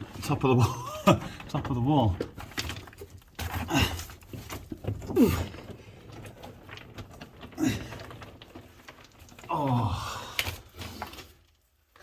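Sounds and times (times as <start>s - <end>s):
person grunting with effort: 5.1s - 5.6s, 9.5s - 10.4s.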